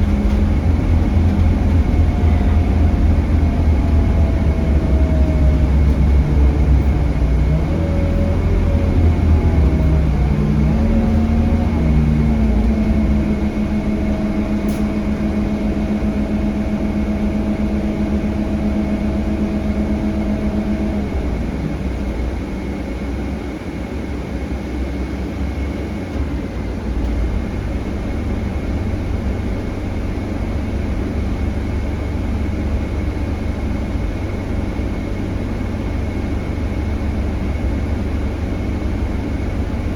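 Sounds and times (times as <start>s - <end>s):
pitched drone: 0.0s - 21.4s
bus engine rumble: 0.0s - 39.9s.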